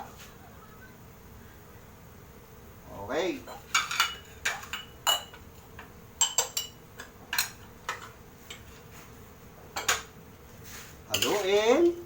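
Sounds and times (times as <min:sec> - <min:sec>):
metal utensil clinking on pot: 0:03.5 - 0:08.7, 0:11.1 - 0:11.6.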